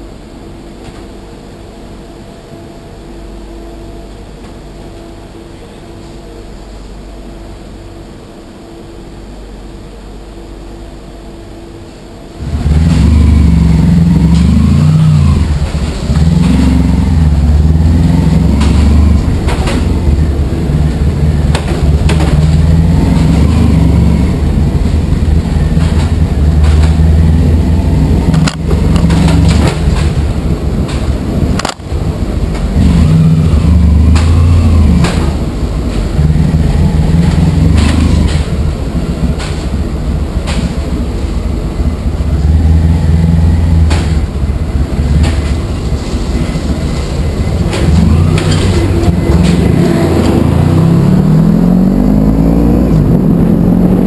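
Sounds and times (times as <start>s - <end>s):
motorcycle engine rumbling: 12.4s - 54.0s.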